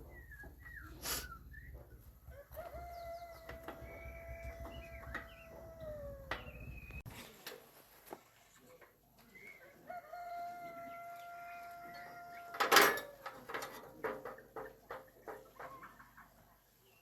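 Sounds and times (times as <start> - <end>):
rooster crowing: 2.3 - 6.6, 9.8 - 13.2.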